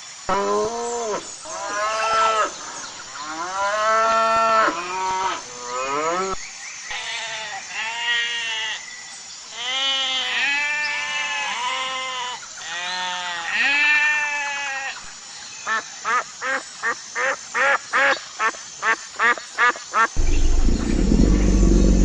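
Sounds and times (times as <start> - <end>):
livestock bleating: 7.1 - 8.8, 9.6 - 14.9.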